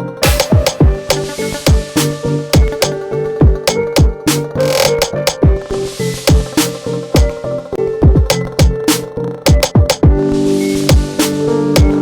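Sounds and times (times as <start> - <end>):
electronic dance music: 0.2 - 5.4, 8.1 - 10.2.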